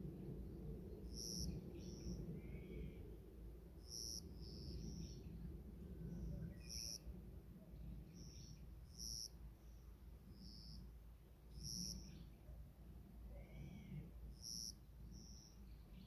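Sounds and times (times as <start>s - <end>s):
faint bird chirps: 6.0s - 7.1s, 13.3s - 16.0s.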